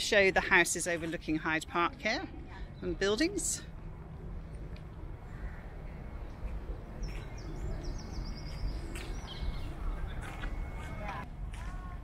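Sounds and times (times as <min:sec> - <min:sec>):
steady low rumble: 0:02.4 - 0:12.0
small bird singing: 0:07.0 - 0:10.5.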